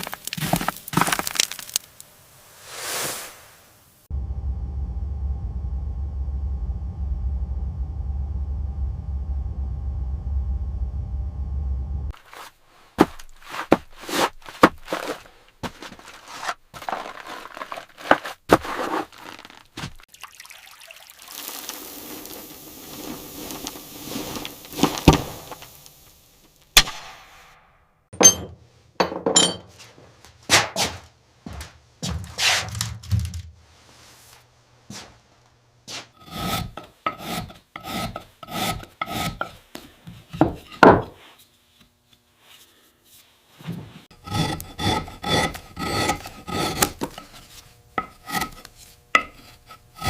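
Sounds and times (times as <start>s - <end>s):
scraping and rustling: 12.2s - 20.0s, 21.6s - 25.7s
knocks and thuds of woodworking: 28.2s - 29.7s, 40.1s - 41.2s.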